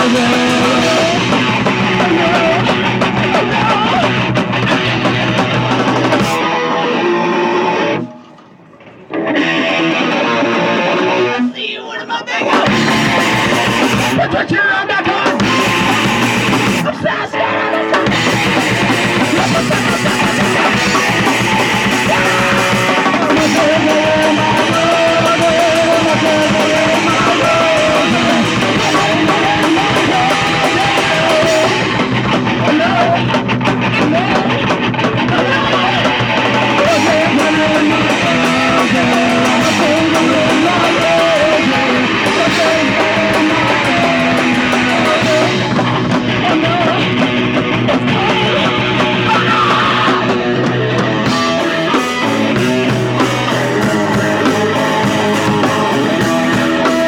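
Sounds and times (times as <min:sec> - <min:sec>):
drum kit: 0:00.0 - 0:06.6, 0:12.6 - 0:14.3, 0:15.1 - 0:17.0, 0:17.8 - 0:57.0
distorted electric guitar: 0:00.0 - 0:57.0.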